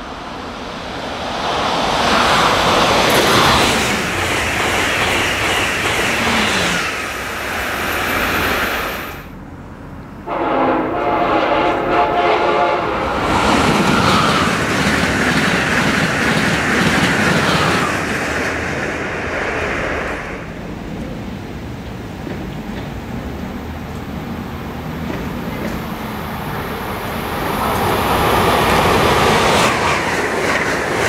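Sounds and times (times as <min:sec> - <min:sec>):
fast train rushing past: 0:00.0 - 0:31.0
train horn blast: 0:10.2 - 0:13.3.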